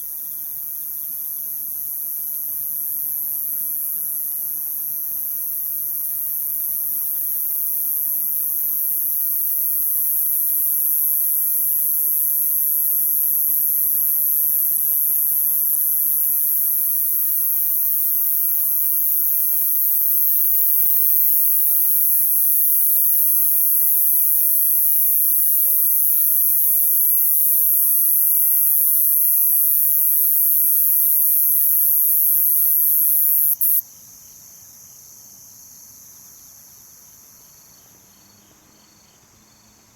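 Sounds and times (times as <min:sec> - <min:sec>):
crickets trilling: 0:05.0 - 0:35.1
insect fast pulsing call: 0:09.7 - 0:34.3.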